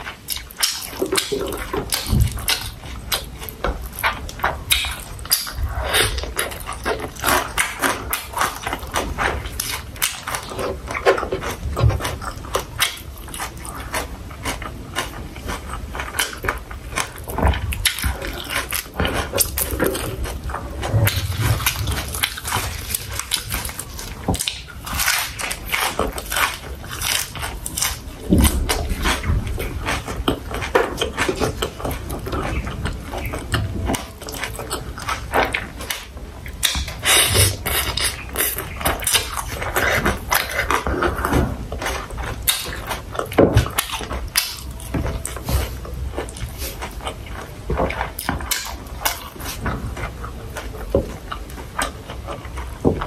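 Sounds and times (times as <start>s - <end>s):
person chewing food: 0.0s - 53.0s.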